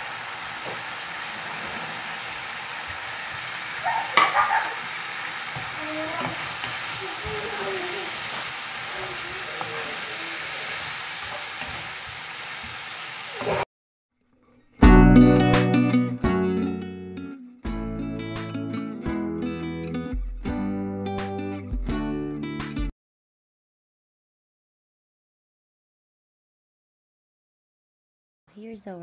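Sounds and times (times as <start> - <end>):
vegetables sizzling in a pan: 0.0 - 13.6.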